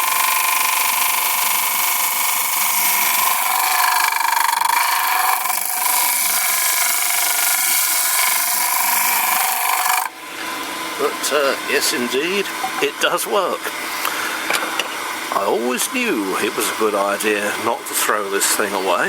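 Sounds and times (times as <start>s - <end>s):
vacuum cleaner running: 0.0s - 4.2s, 8.7s - 19.0s
disc sander sanding wood: 0.0s - 19.0s.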